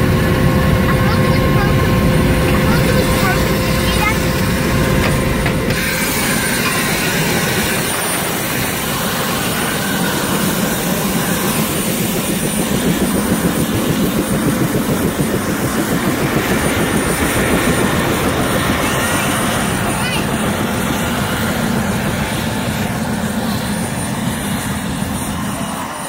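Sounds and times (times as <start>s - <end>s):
helicopter rotor and engine rumble: 0.0s - 26.0s.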